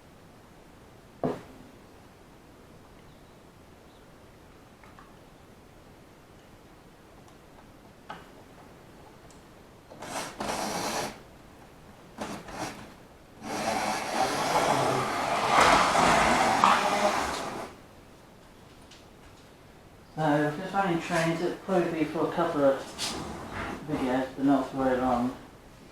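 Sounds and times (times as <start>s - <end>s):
model train whirring: 10.0s - 11.2s, 13.4s - 17.8s.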